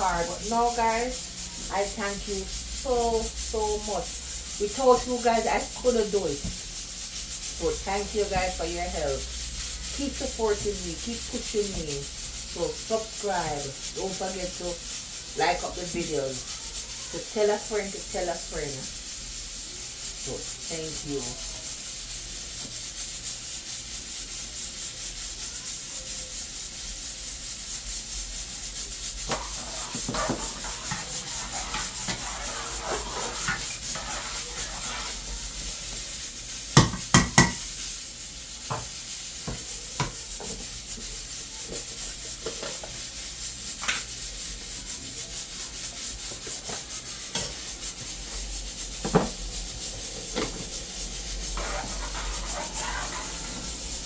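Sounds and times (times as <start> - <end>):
steady hiss: 26.4 - 54.0
utensils and pots clinking: 28.9 - 37.9, 46.3 - 54.0.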